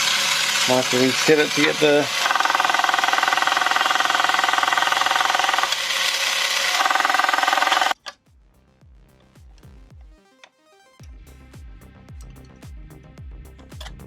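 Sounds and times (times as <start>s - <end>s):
toy motor gears whirring: 0.0s - 8.2s.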